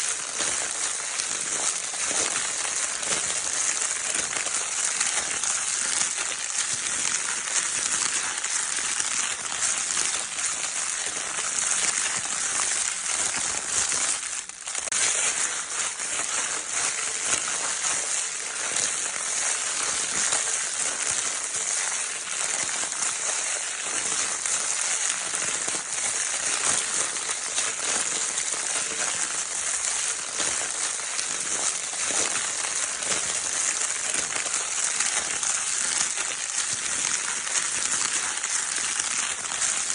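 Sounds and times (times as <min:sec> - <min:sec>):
crinkle paper toy crackling: 0:00.0 - 0:39.9.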